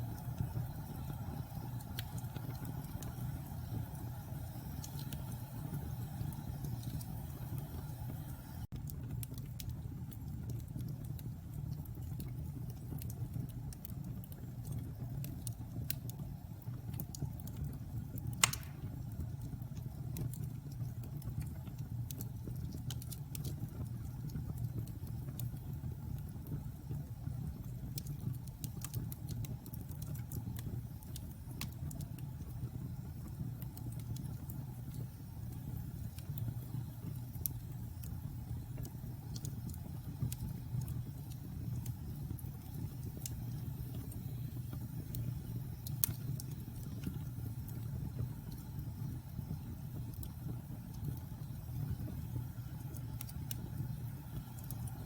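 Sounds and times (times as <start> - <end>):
fire crackling: 0.0 - 55.0
fire rumbling: 0.0 - 55.0
loud pop from fire: 18.4 - 19.1.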